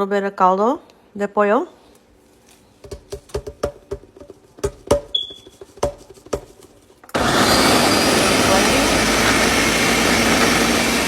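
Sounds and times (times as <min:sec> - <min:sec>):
hollow taps on hard container: 0:02.8 - 0:06.7.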